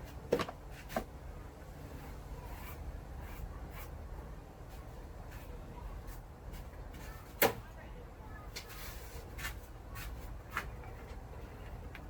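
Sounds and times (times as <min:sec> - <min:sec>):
faint scraping and rubbing: 0:01.8 - 0:07.3, 0:08.6 - 0:12.0.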